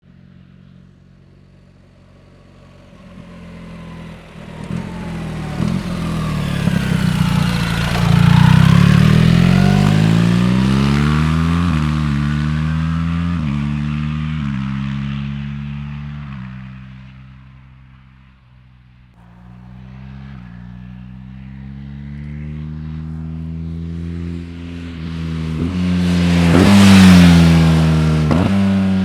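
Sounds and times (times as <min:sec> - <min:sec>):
motorcycle engine accelerating: 0:00.1 - 0:29.0.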